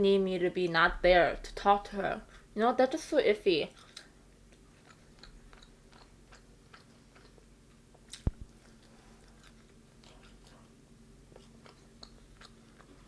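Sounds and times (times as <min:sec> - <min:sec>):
chewing crispy food: 0:03.7 - 0:13.0.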